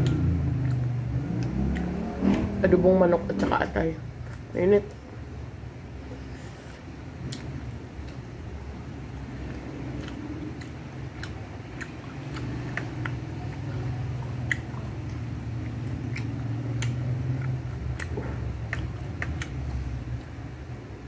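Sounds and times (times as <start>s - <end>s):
wet chewing with smacks: 0.0s - 2.4s, 9.1s - 20.7s
steady low hum: 0.0s - 21.0s.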